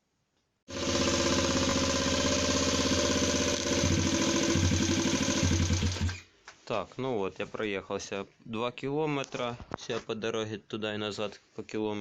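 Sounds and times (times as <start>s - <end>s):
moped engine running: 0.7s - 6.2s.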